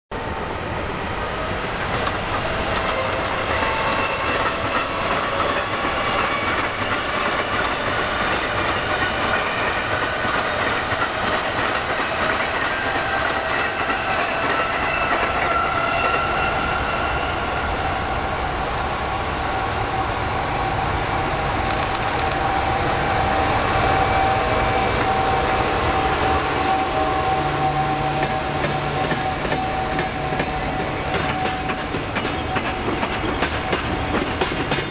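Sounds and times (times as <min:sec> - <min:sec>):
train wheels clattering over rails: 0:01.6 - 0:16.2, 0:21.6 - 0:22.7, 0:28.1 - 0:34.9.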